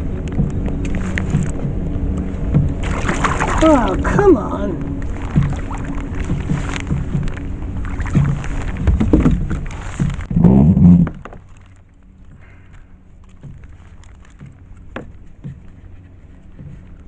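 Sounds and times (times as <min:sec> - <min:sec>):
thumps and knocks on kayak: 0:02.4 - 0:03.7, 0:05.2 - 0:11.5, 0:13.3 - 0:15.8.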